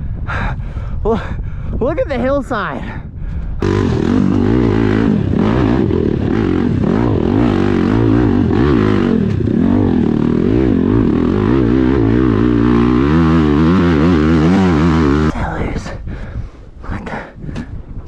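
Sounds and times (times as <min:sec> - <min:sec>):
dirt bike engine revving: 0:03.6 - 0:15.3.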